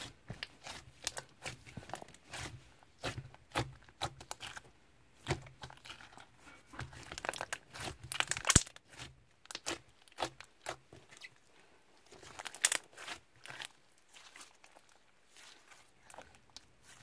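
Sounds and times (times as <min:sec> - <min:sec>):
slime crackling and popping: 0:06.9 - 0:10.8, 0:12.2 - 0:14.5.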